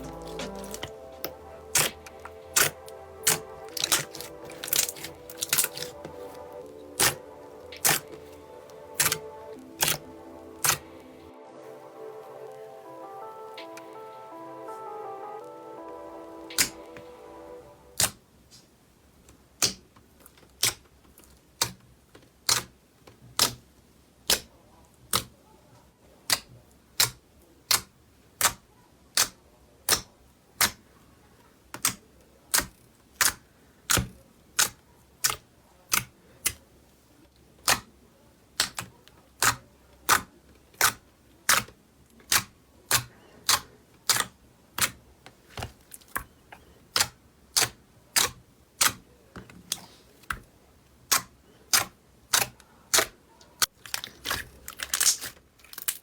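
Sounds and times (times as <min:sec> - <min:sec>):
slime clicking pops: 0:09.0 - 0:09.2, 0:20.6 - 0:20.8, 0:22.4 - 0:22.7, 0:23.4 - 0:23.6, 0:26.3 - 0:28.6, 0:37.6 - 0:37.9, 0:38.6 - 0:41.7, 0:42.3 - 0:45.0, 0:46.9 - 0:49.0.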